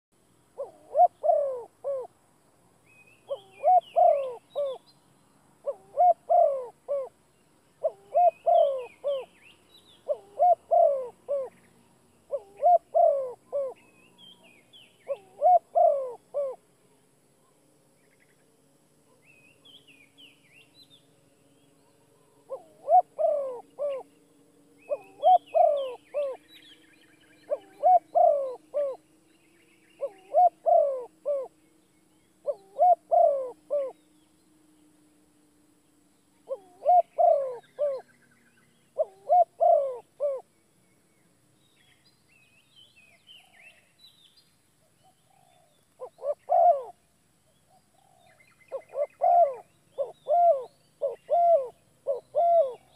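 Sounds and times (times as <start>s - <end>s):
bird calling low phrase: 3.2s - 4.8s, 7.8s - 9.4s, 24.8s - 26.8s, 27.4s - 29.1s, 36.4s - 38.2s, 48.3s - 52.9s
higher bird chirps: 19.1s - 34.4s.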